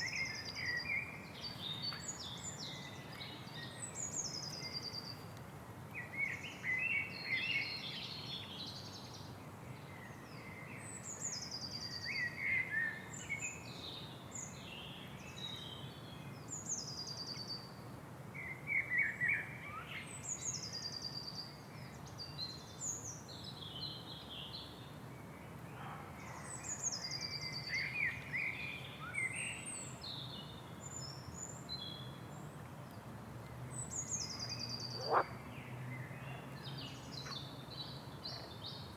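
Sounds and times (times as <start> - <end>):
low background noise: 0.0 - 38.9
songbirds chirping and warbling: 25.7 - 38.9.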